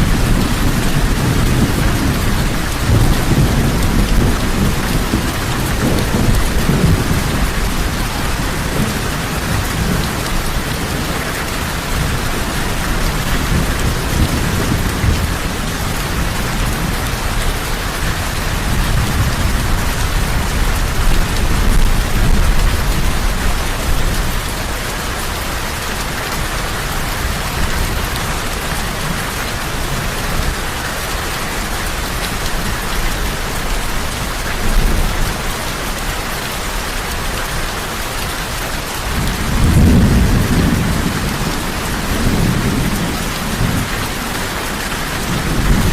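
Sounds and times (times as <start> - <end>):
heavy rain falling: 0.0 - 45.9
rolling thunder: 39.1 - 45.9.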